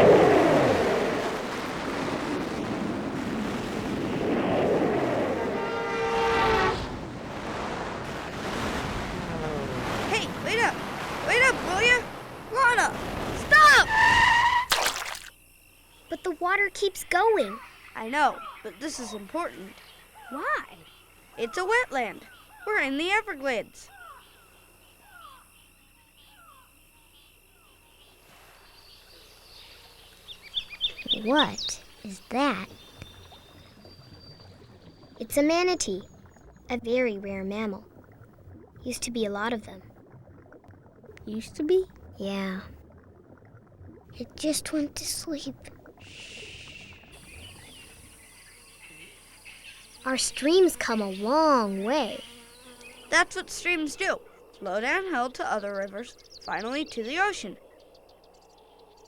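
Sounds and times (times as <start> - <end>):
rushing river water: 0.0 - 14.0, 14.7 - 15.3
pulsing insect trill: 9.1 - 38.2, 44.1 - 59.0.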